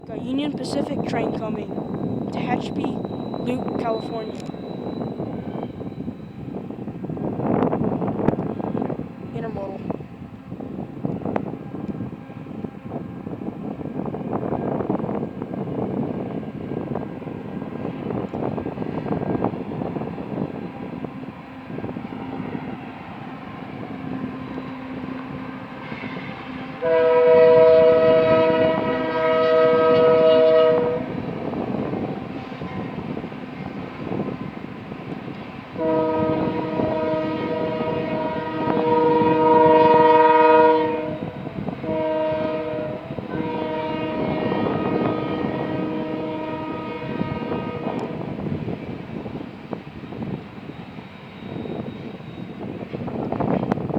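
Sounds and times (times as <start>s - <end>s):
diesel locomotives rumbling: 0.0s - 53.9s
locomotive air horn chord: 24.9s - 31.3s, 35.8s - 48.3s.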